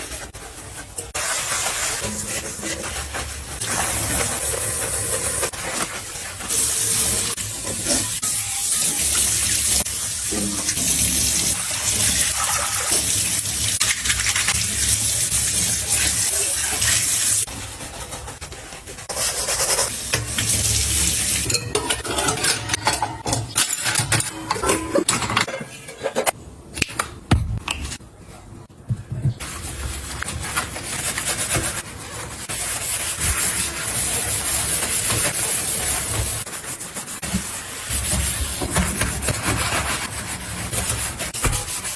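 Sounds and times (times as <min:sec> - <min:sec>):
water running from tap into sink: 0:06.4 - 0:17.5, 0:19.4 - 0:21.5.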